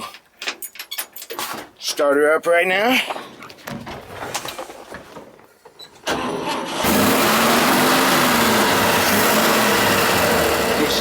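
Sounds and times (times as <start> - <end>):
starter motor cranking: 6.1 - 11.0
car engine running: 6.8 - 11.0.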